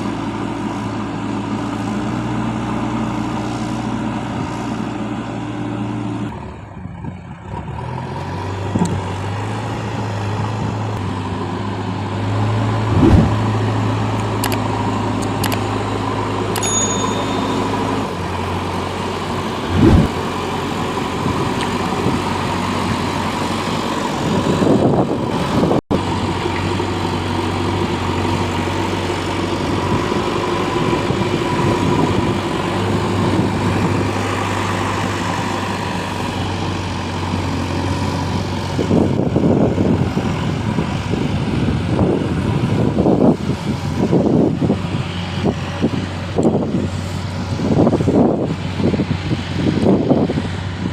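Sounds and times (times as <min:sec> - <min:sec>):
heavy diesel engine running: 0:00.0 - 0:50.9
short thumps: 0:12.9 - 0:13.6.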